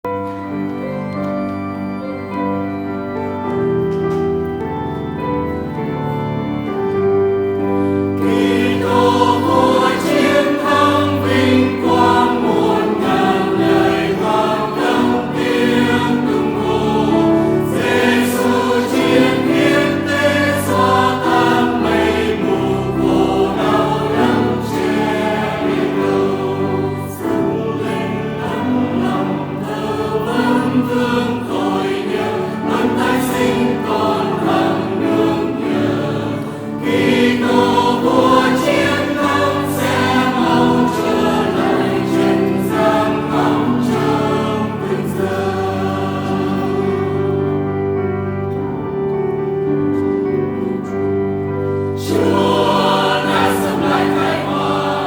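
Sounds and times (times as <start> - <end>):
instrumental accompaniment: 0.0 - 55.0
choir singing a hymn: 0.1 - 55.0.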